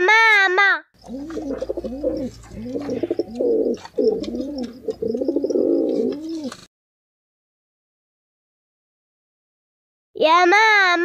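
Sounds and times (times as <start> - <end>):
pigeon cooing: 1.0 - 6.7.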